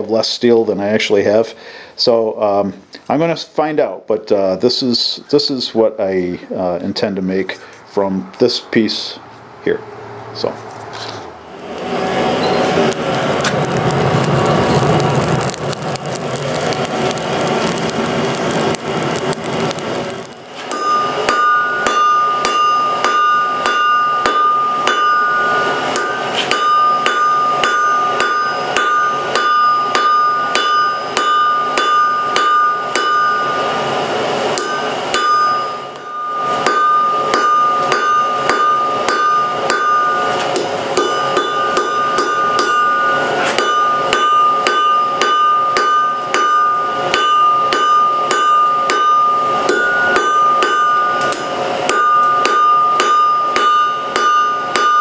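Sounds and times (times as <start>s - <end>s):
hammer striking steel on anvil: 20.6s - 55.0s
anvil ringing: 20.7s - 55.0s.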